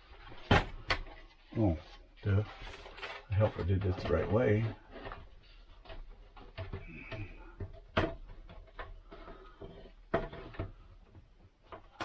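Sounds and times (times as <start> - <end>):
parts clicking and knocking: 2.6 - 12.0.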